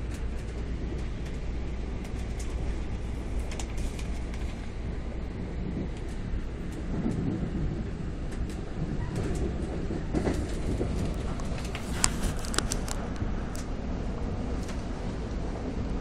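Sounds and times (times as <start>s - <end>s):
sharp clicks of train wheels: 0.0s - 13.8s, 14.5s - 15.4s
train rumbling: 0.0s - 16.0s.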